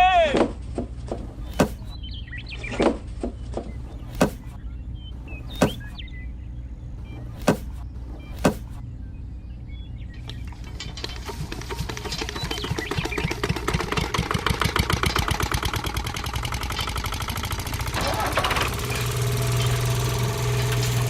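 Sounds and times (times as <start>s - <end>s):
sharp knocks: 0.4s - 1.9s, 2.8s - 4.6s, 5.5s - 6.0s, 7.1s - 8.8s
small electric motor humming: 18.3s - 21.0s.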